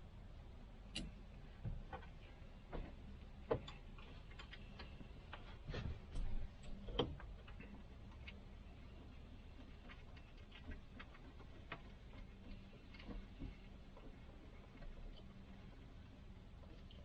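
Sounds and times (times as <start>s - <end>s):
light clicks and taps of hand work: 0.9s - 8.4s.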